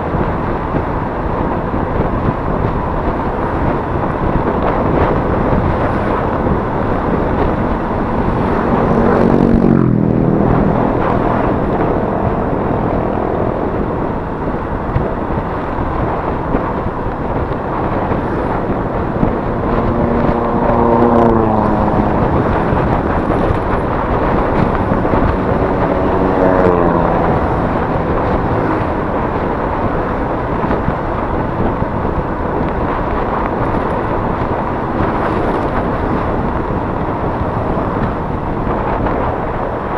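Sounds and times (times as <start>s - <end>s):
scooter engine: 0.0s - 39.9s
wind and road noise: 0.0s - 39.9s
engine note sliding down in pitch: 17.9s - 30.8s.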